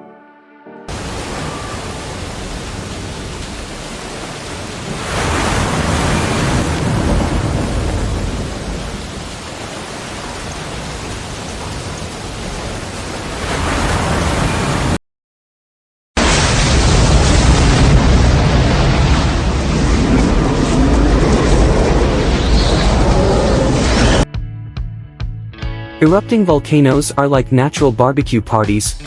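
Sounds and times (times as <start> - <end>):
storm with heavy rain: 0.9 - 15.0, 16.2 - 24.3.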